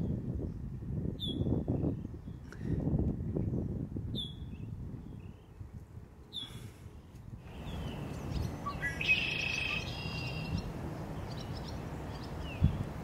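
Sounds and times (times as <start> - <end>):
birds chirping: 7.5 - 13.0.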